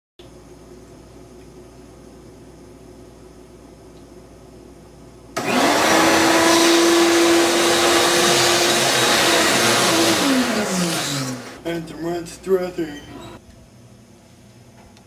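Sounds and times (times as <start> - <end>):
electric motor whining: 5.4 - 11.7.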